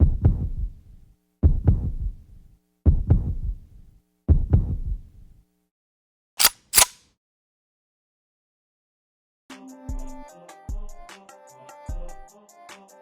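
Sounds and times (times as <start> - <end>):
heartbeat thumps: 0.0 - 0.7, 1.4 - 2.2, 2.9 - 3.6, 4.3 - 5.0
sharp click: 6.4 - 7.0.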